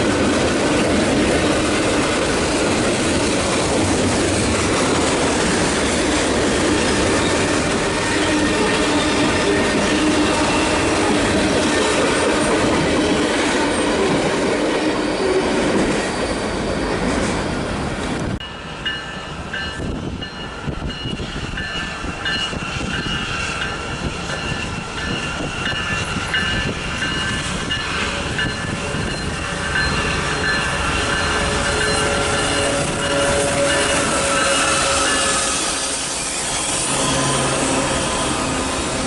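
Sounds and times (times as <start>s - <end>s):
train cars rumbling on tracks: 0.0s - 39.0s
high-pitched wheel squeal: 14.9s - 18.0s, 22.0s - 39.0s.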